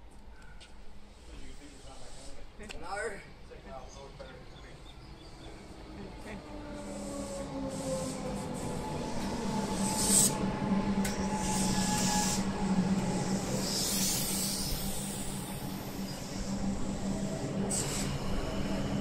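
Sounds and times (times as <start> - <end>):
train hum: 0.0 - 19.0
electric train arriving: 3.4 - 19.0.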